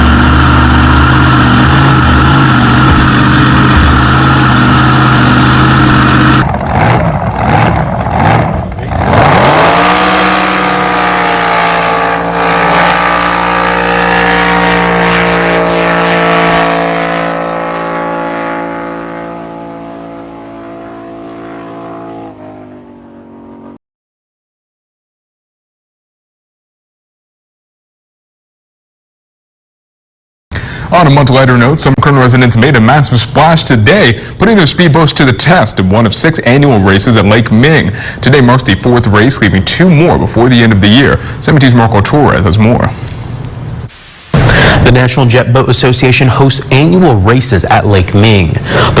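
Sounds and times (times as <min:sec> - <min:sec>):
loud boat engine: 0:00.0 - 0:23.8, 0:30.6 - 0:41.4, 0:48.6 - 0:49.0.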